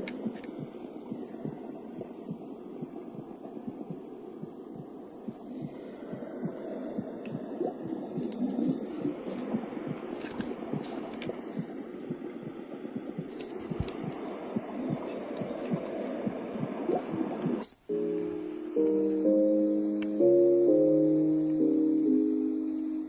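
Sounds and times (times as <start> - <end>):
muffled whooshing heartbeat: 0.0 - 17.7.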